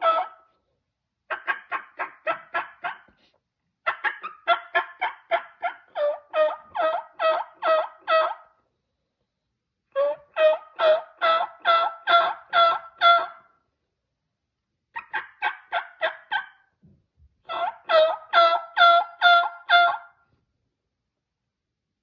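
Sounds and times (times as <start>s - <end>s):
turkey call yelping: 0.0s - 0.6s, 1.3s - 3.1s, 3.8s - 8.6s, 9.9s - 13.5s, 15.0s - 16.7s, 17.5s - 20.2s.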